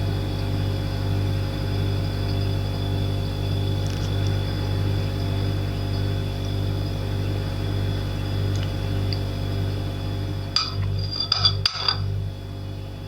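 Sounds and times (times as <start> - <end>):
steady low hum: 0.0 - 13.0
kitchenware clinking: 10.6 - 12.1.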